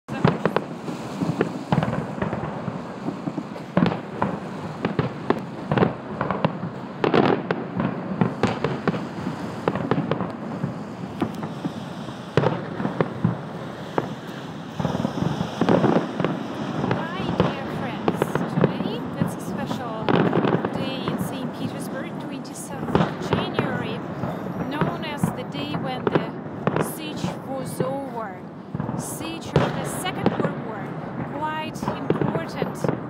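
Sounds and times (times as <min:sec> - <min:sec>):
firework shells bursting: 0:00.1 - 0:21.9.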